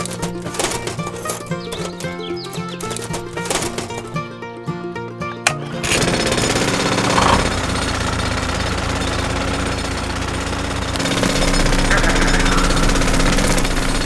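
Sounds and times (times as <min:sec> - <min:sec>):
background music: 0:00.0 - 0:07.8, 0:10.7 - 0:14.0
toy drill boring into sand: 0:05.6 - 0:14.0.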